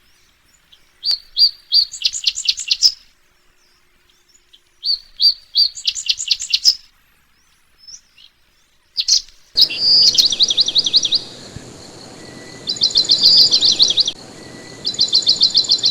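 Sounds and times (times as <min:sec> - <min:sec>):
songbird singing: 0:09.0 - 0:15.9.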